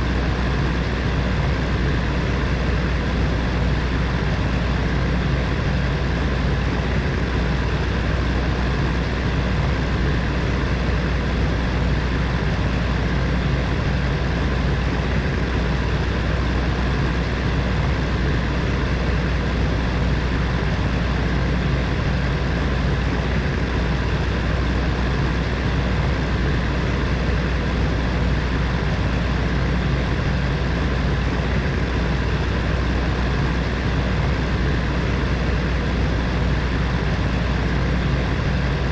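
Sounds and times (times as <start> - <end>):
space heater fan running: 0.0 - 38.9.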